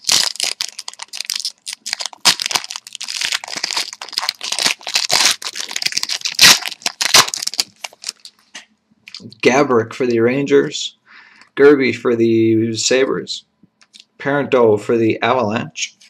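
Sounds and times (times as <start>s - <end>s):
foil wrapper tearing and crinkling: 0.0s - 8.5s.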